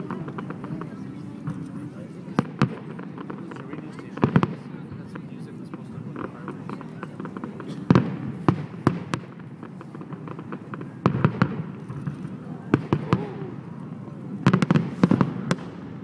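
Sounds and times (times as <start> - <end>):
fireworks bangs: 0.0 - 16.0
fireworks crackling: 0.0 - 16.0.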